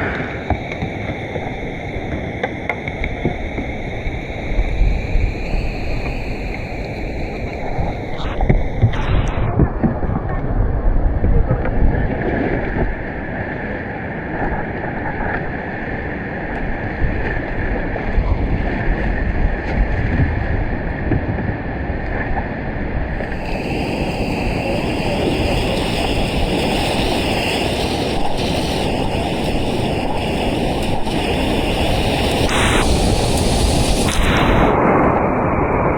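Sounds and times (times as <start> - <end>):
wind buffeting microphone: 0.0 - 35.9
rushing whitewater: 23.2 - 35.9.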